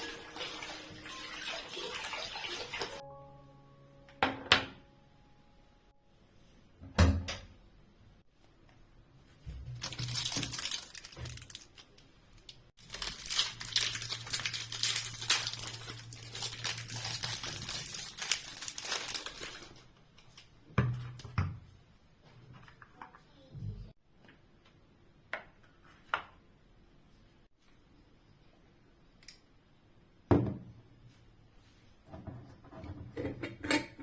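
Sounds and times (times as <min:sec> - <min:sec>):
crinkling rustling handling noise: 0:09.3 - 0:21.2.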